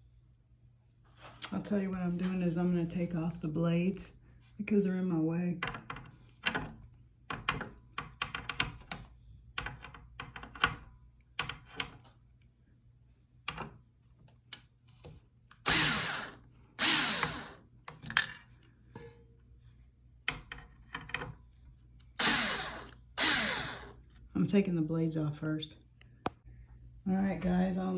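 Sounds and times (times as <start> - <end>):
power drill whirring: 15.6 - 17.6, 22.2 - 24.0.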